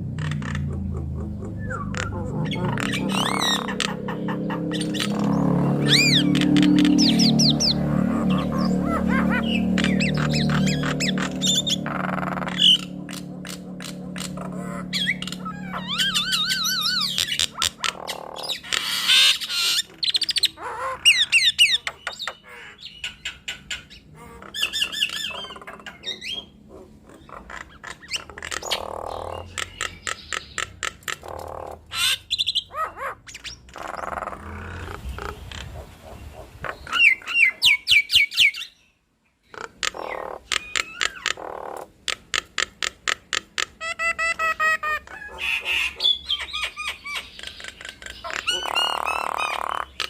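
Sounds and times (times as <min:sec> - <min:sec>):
harsh bird squawks: 0:00.0 - 0:38.8, 0:39.5 - 0:50.0
mynas whistling and warbling: 0:00.1 - 0:22.4, 0:47.9 - 0:49.9
rapid clicking bird notes: 0:27.4 - 0:31.9, 0:39.6 - 0:44.4.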